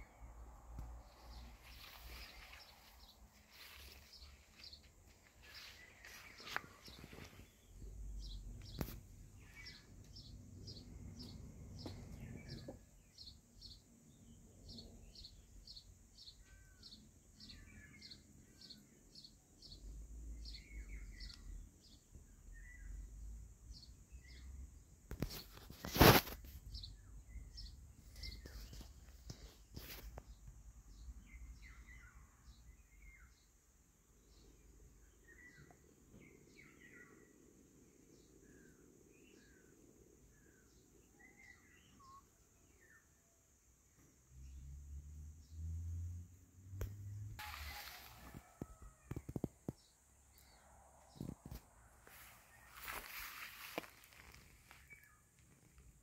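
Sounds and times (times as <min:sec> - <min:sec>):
lower bird calls: 0:47.4 - 0:55.7.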